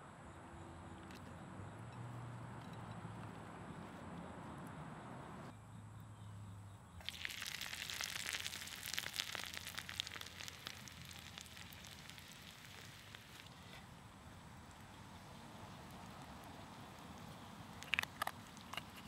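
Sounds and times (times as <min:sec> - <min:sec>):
food sizzling in hot fat: 0:07.0 - 0:13.6, 0:14.7 - 0:17.8.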